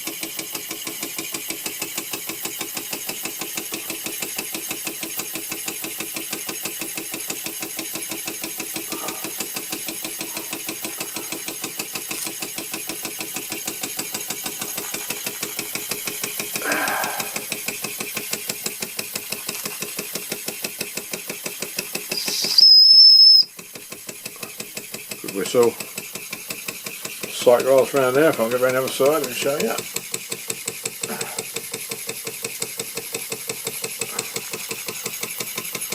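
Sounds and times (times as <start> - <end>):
toy steam engine chuffing: 0.0 - 35.9
high steam whistle: 22.1 - 23.5.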